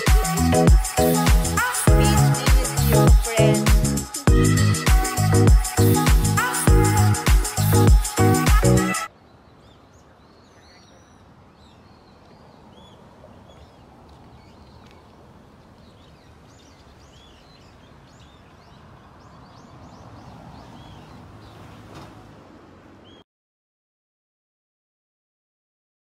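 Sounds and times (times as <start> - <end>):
music: 0.0 - 9.1
outdoor background noise: 0.0 - 23.2
small birds chirping: 9.0 - 21.8, 23.0 - 23.2.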